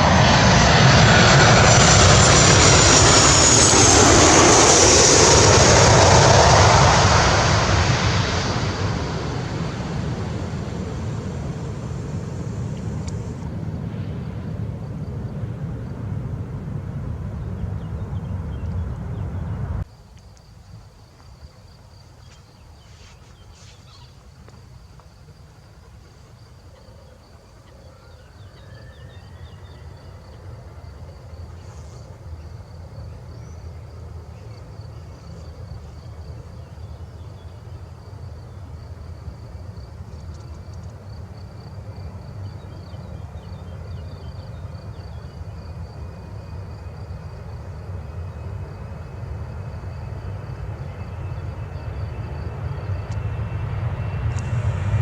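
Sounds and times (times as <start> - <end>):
distant jet engine whine: 0.0 - 19.9, 20.7 - 55.0
insects chirping: 0.0 - 55.0
low rumble: 5.6 - 19.8, 53.6 - 55.0.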